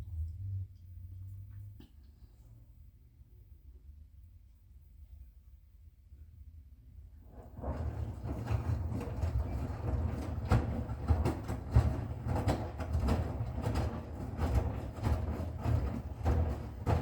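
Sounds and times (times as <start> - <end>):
washing machine rumbling: 7.3 - 17.0
drum knocking and clattering: 7.6 - 17.0.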